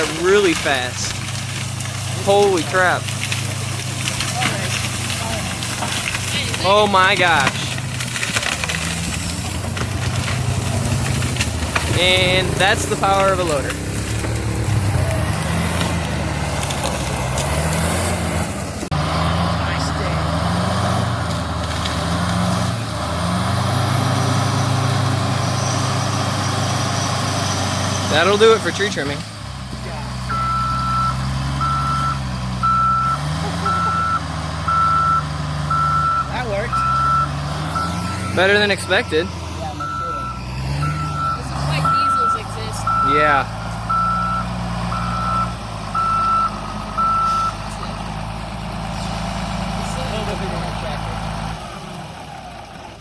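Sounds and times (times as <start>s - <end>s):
diesel engine running: 0.0s - 53.0s
reversing alarm beeping: 30.3s - 47.6s.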